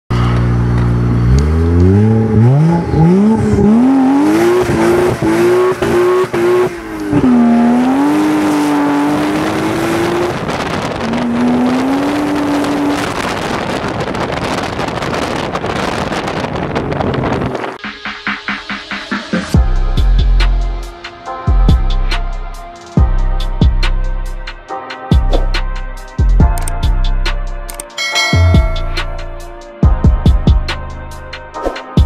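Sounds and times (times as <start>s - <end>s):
car engine accelerating: 0.1s - 17.8s.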